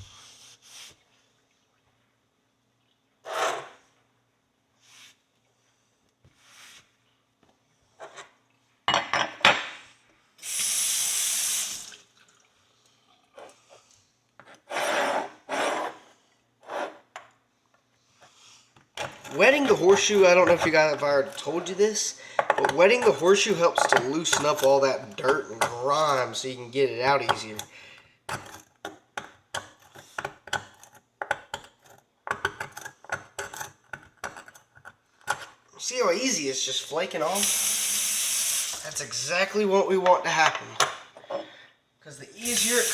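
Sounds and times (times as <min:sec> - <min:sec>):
metal tool scraping horseshoe: 0:03.2 - 0:03.8, 0:14.6 - 0:16.0, 0:19.0 - 0:21.8, 0:22.6 - 0:26.4
tap water running: 0:10.4 - 0:13.4, 0:37.2 - 0:39.3, 0:42.4 - 0:42.9.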